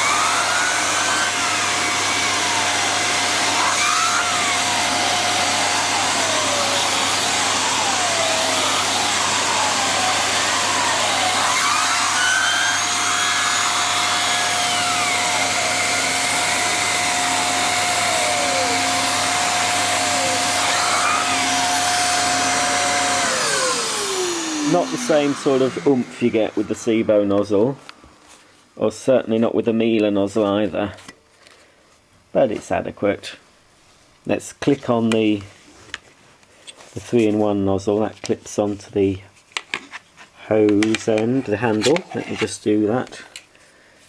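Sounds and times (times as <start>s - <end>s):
turbo brush whine: 0.0s - 28.2s
vacuum cleaner motor whine: 0.0s - 28.4s.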